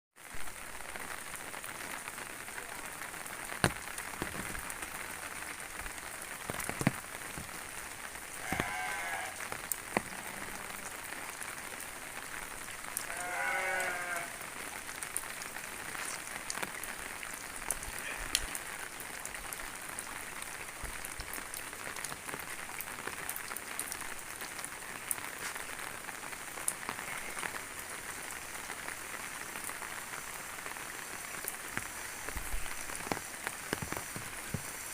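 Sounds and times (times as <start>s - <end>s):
steady rain: 0.2s - 34.9s
animal bleating: 8.4s - 9.4s, 13.1s - 14.4s.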